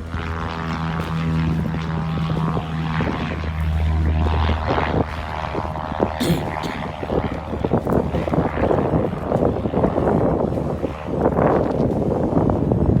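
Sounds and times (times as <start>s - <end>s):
propeller aircraft engine humming: 0.0s - 13.0s.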